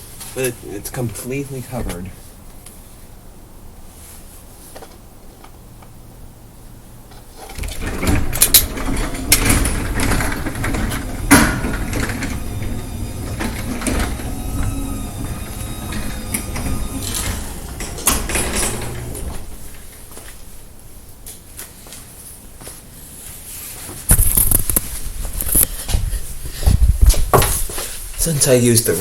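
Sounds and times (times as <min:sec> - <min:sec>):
garage door opener rumbling: 0:07.4 - 0:20.1
garage door clunks: 0:07.5 - 0:20.0.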